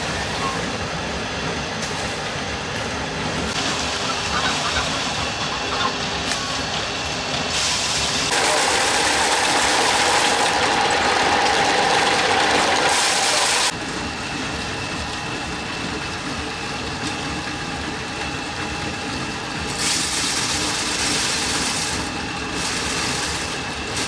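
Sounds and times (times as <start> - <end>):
motor running: 3.5 - 13.7.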